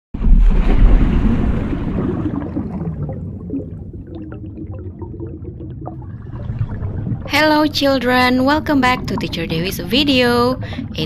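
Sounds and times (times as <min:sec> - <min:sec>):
rush of water: 0:00.2 - 0:03.2.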